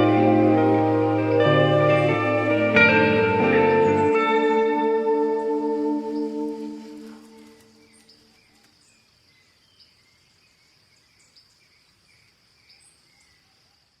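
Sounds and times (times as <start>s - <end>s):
guitar notes: 0.0s - 7.8s
high insect drone: 0.0s - 14.0s
faint birds chirping: 1.1s - 14.0s.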